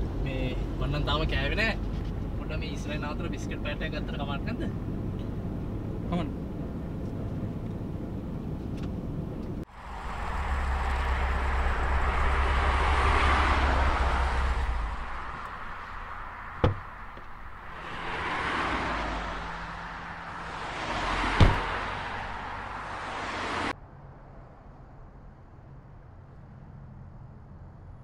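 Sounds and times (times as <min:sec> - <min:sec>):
low traffic rumble: 0:00.0 - 0:28.0
vehicle passing by: 0:09.7 - 0:23.8.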